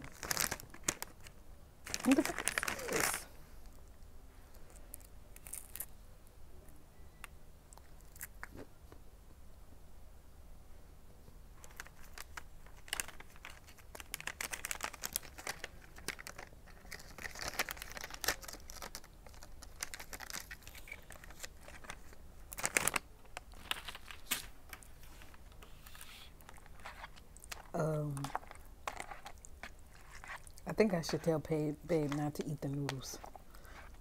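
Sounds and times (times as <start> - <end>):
person chewing crunchy food: 28.3 - 30.6.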